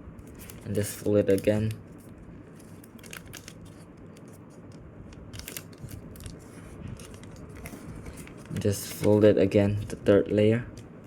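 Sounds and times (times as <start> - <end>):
paper being folded and creased: 0.2 - 4.5, 5.3 - 9.2
paper rustling and crinkling: 0.2 - 4.7, 5.3 - 10.1.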